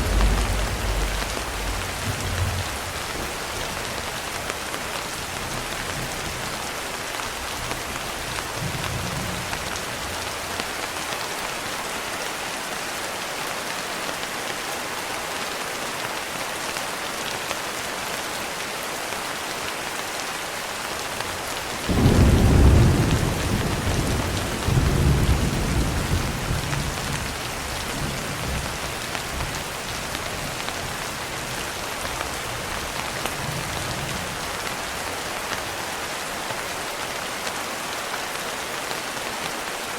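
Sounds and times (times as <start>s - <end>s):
thunder rumble: 0.0s - 4.4s, 21.9s - 27.4s
rain pattering on window glass: 0.0s - 10.8s.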